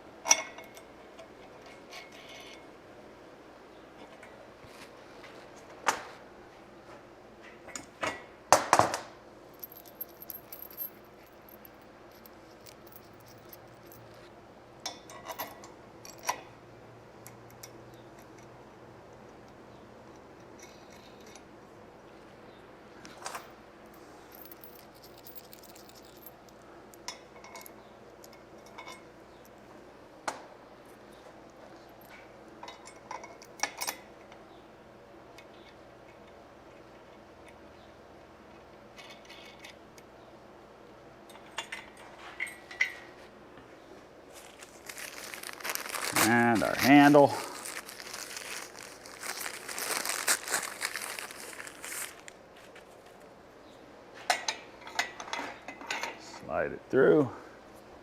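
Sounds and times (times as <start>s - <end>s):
metal parts clinking and knocking: 8.8s - 16.5s, 20.1s - 21.5s, 23.2s - 29.6s, 38.5s - 39.8s, 44.4s - 52.3s.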